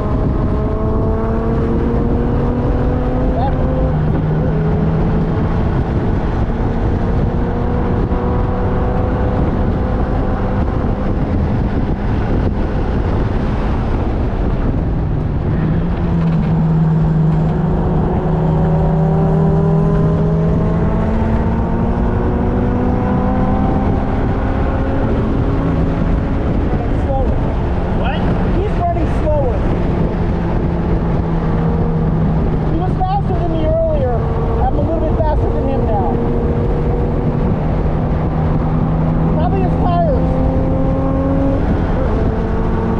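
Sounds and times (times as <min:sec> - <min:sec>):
race car engine running hard: 0:00.0 - 0:42.9
road noise: 0:00.0 - 0:42.9
rushing wind: 0:00.0 - 0:42.9.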